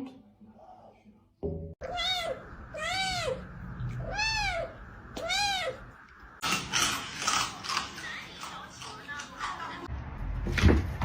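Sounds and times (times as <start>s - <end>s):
cat meowing: 1.8s - 5.9s.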